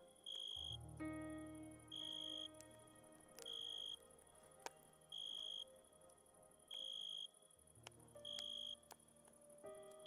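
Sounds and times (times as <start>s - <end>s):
crickets chirping: 0.0s - 0.8s, 1.9s - 2.6s, 3.4s - 4.3s, 5.0s - 5.9s, 6.6s - 7.5s
soft ambient music: 0.0s - 10.0s.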